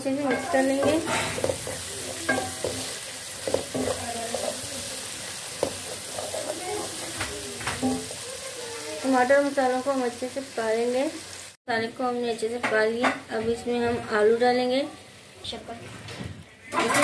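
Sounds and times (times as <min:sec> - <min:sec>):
masala sizzling in oil: 0:00.0 - 0:17.0
wooden spoon stirring and scraping: 0:00.2 - 0:08.2
spoon knocking against pan: 0:00.3 - 0:04.5, 0:05.6 - 0:08.2.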